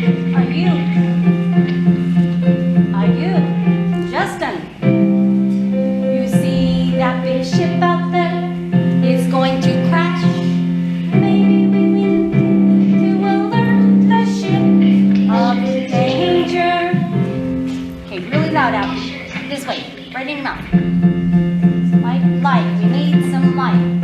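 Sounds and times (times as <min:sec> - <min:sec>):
instrumental accompaniment: 0:00.0 - 0:24.0
children singing opera: 0:09.5 - 0:17.5.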